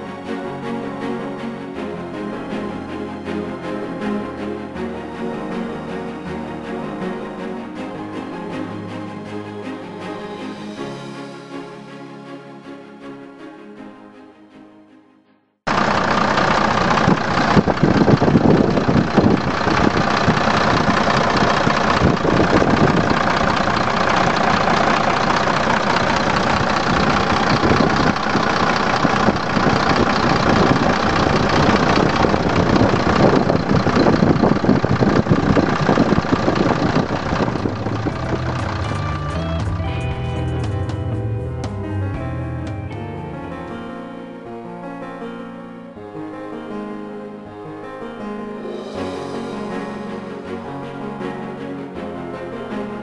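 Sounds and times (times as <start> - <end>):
truck diesel engine idling: 15.7 - 43.8.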